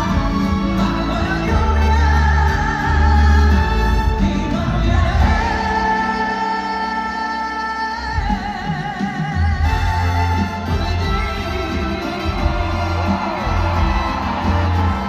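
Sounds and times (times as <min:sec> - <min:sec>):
woman singing with vibrato: 0:00.0 - 0:09.0
live band playing: 0:00.0 - 0:15.0.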